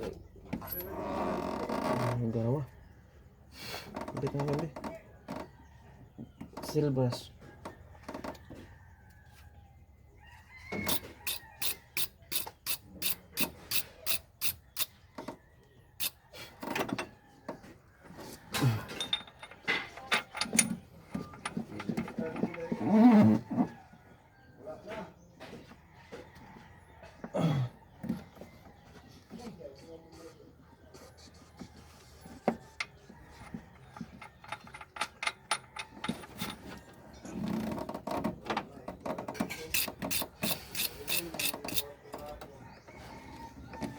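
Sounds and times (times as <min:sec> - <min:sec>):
metal hand tools clinking: 0:18.8 - 0:21.9, 0:39.7 - 0:41.8
rhythmic scraping strokes: 0:39.7 - 0:41.9.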